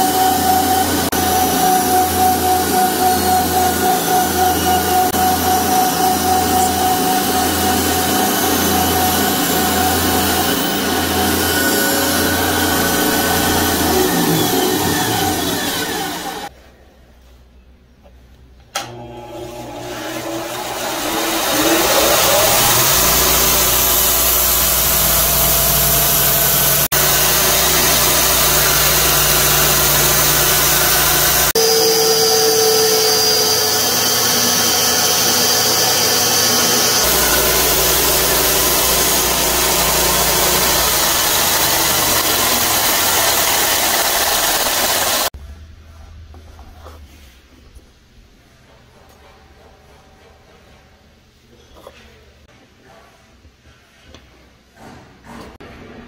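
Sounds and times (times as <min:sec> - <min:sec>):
belt sander motor whine: 0:00.0 - 0:16.5, 0:18.9 - 0:45.3.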